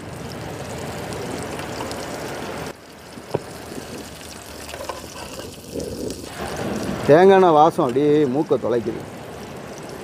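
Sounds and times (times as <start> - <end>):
prawn sizzling in oil: 0.0 - 10.0.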